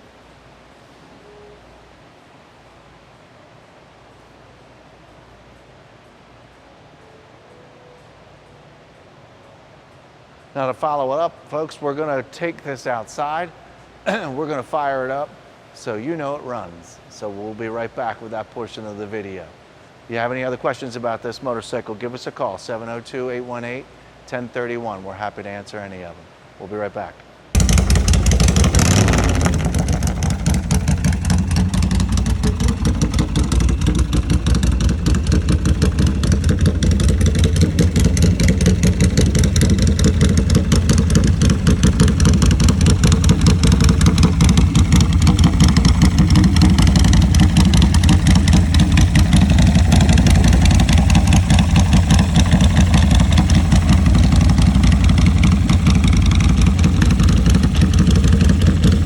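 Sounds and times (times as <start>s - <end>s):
motorcycle engine idling: 27.6s - 59.0s.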